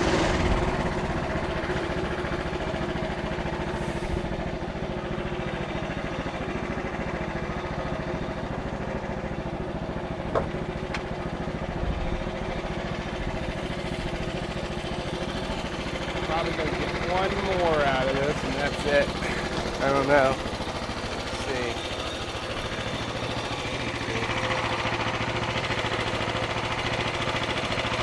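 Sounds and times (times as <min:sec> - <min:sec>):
petrol engine idling: 0:00.0 - 0:28.0.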